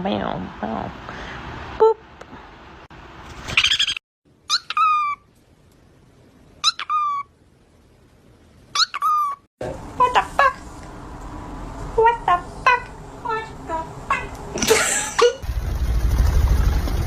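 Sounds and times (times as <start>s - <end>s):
parrot calling: 3.6s - 5.3s, 6.6s - 7.3s, 8.7s - 9.5s.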